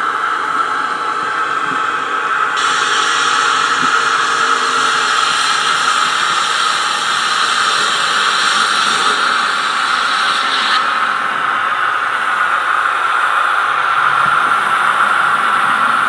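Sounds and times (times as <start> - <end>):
model locomotive diesel engine sound: 0.0 - 16.0
higher hiss: 2.5 - 13.2.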